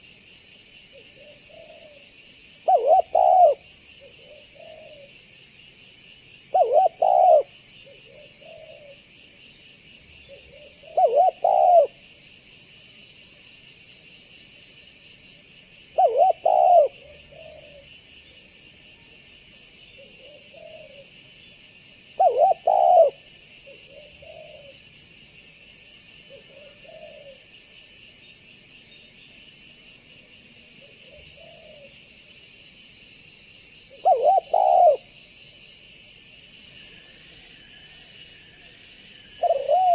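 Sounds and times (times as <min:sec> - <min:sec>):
dove cooing: 0:02.6 - 0:05.1, 0:06.5 - 0:07.5, 0:08.1 - 0:09.0, 0:10.3 - 0:12.0, 0:16.0 - 0:17.9, 0:20.0 - 0:21.0, 0:22.2 - 0:24.8, 0:26.3 - 0:27.4, 0:31.0 - 0:32.0, 0:33.9 - 0:35.1, 0:39.4 - 0:39.9
high-pitched insect chirring: 0:34.2 - 0:39.9.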